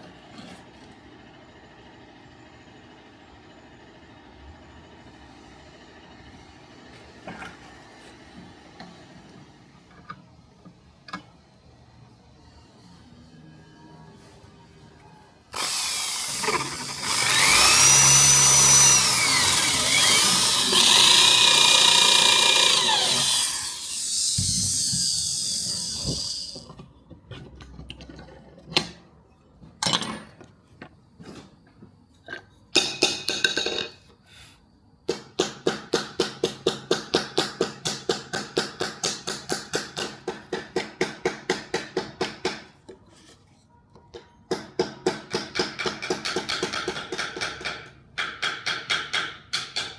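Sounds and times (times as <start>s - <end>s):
power tool whining: 15.5s - 26.7s.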